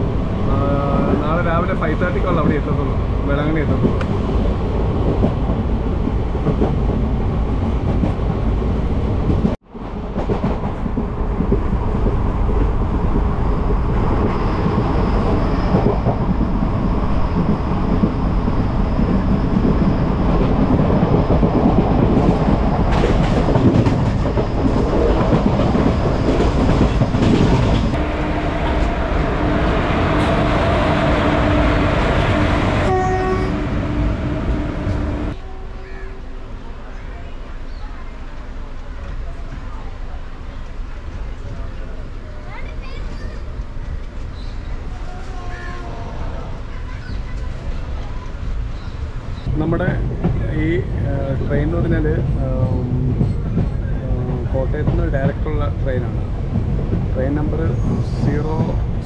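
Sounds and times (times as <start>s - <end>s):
wind rushing: 0.0s - 35.4s
train wheels on rails: 3.4s - 59.0s.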